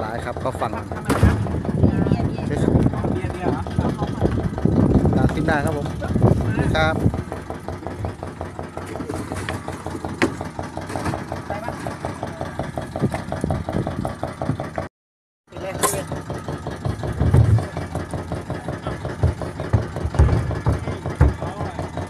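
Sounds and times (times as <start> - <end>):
boat engine running: 0.0 - 14.9, 15.5 - 22.0.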